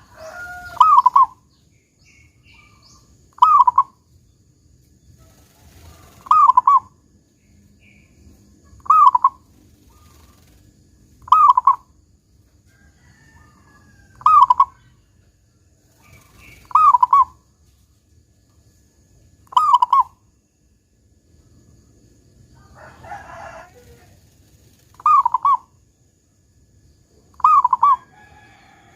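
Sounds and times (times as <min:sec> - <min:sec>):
dove cooing: 0:00.0 - 0:01.4, 0:02.5 - 0:04.0, 0:05.2 - 0:07.0, 0:08.7 - 0:10.5, 0:11.2 - 0:11.9, 0:14.1 - 0:14.9, 0:16.0 - 0:17.4, 0:19.5 - 0:20.2, 0:24.9 - 0:25.7, 0:27.3 - 0:28.9.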